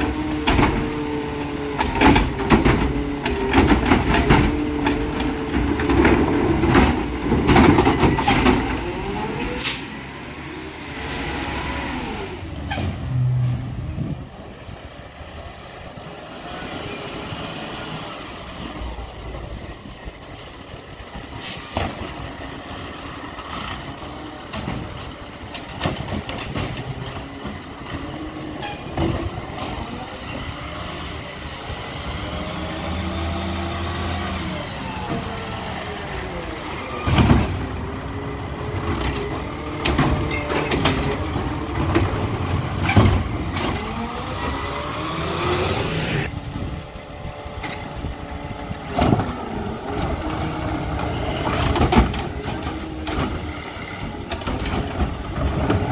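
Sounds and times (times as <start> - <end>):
garbage truck engine revving: 0.0 - 14.4, 21.8 - 55.9
loud clattering and knocks: 1.7 - 9.0, 24.5 - 29.8, 38.8 - 44.2, 48.9 - 55.9.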